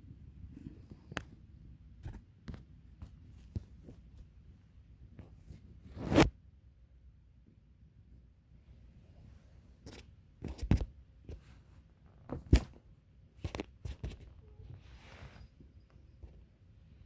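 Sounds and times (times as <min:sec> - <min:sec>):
soft rustle: 0:08.6 - 0:17.0.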